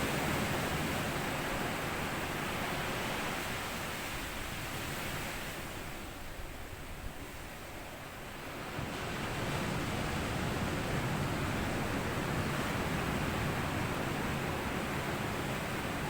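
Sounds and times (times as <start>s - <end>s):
sea waves breaking on sandy beach: 8.3s - 16.0s.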